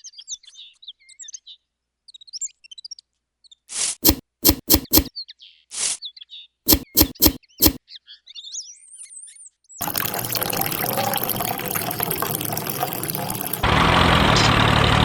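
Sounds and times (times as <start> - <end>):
sharp clicks: 4.0 - 5.1, 6.7 - 7.8
small pump motor whirring: 4.0 - 5.1, 6.7 - 7.8
water splashing: 9.8 - 13.7.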